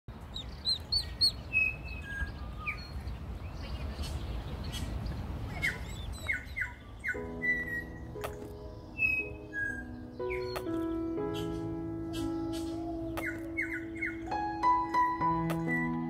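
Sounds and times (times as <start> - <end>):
birds chirping and peeping: 0.1 - 16.0
soft music with held notes: 7.0 - 16.0.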